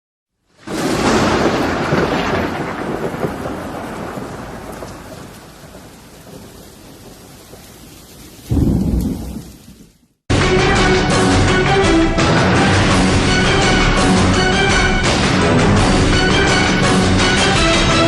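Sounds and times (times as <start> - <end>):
steady rain hissing: 0.4 - 10.3
thunder rumbling: 0.6 - 10.8.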